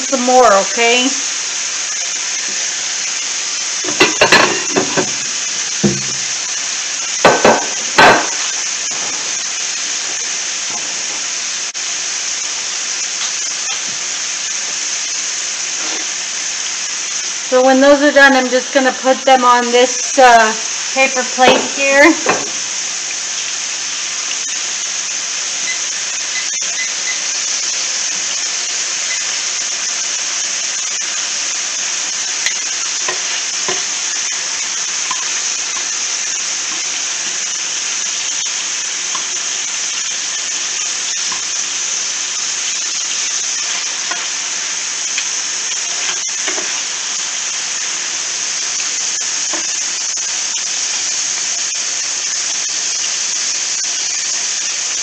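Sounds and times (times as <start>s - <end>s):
chicken sizzling in oil: 0.0s - 55.0s.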